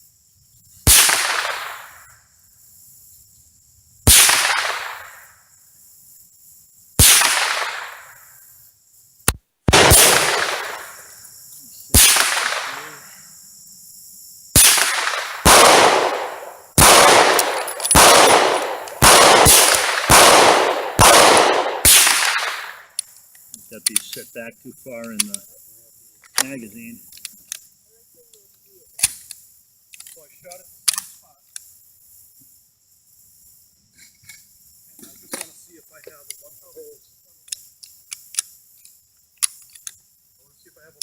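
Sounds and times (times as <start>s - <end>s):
rifle gunshots echoing: 0.9s - 1.9s, 4.1s - 5.2s, 7.0s - 8.0s, 9.7s - 11.0s, 11.9s - 13.1s, 14.6s - 22.8s.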